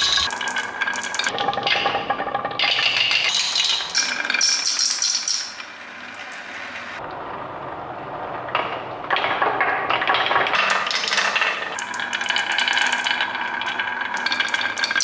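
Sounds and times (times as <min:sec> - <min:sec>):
marbles clattering down a run: 0:00.0 - 0:05.7, 0:10.0 - 0:15.0
marbles rolling: 0:00.0 - 0:05.7, 0:09.3 - 0:15.0.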